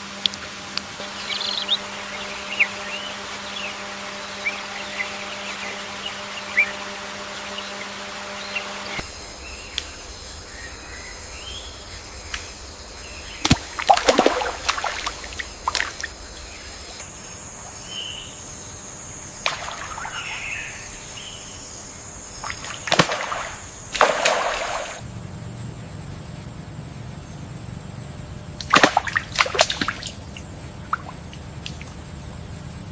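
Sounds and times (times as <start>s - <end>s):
faint bird chirps: 1.0s - 22.8s
shallow water splashing: 13.4s - 17.0s, 19.4s - 20.6s, 22.4s - 25.0s, 28.6s - 31.8s.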